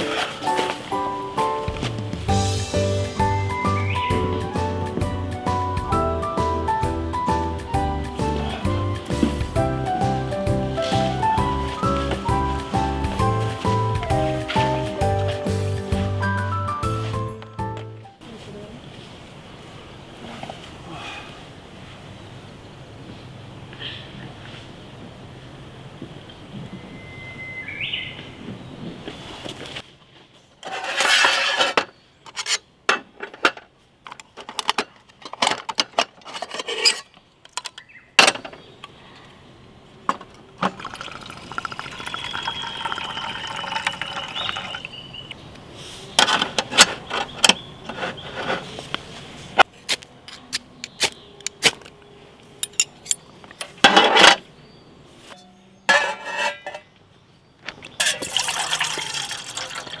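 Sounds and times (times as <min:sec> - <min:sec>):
water poured into cup: 0:40.6 - 0:45.0, 0:58.0 - 1:00.0
metal cookware clinking: 0:52.6 - 0:53.2, 0:55.9 - 0:56.9, 0:58.0 - 1:00.0.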